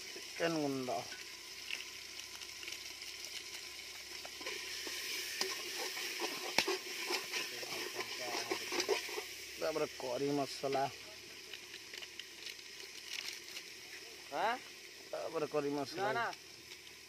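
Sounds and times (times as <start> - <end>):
spices sizzling in oil: 0.0 - 17.0
metal spatula scraping a pot: 4.4 - 9.4.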